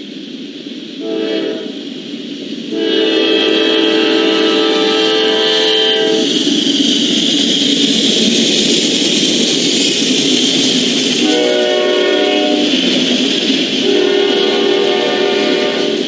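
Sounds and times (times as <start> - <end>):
freight locomotives passing: 0.0 - 16.0
locomotive air horn chord: 1.0 - 1.8, 2.7 - 6.3, 11.2 - 12.7, 13.8 - 16.0.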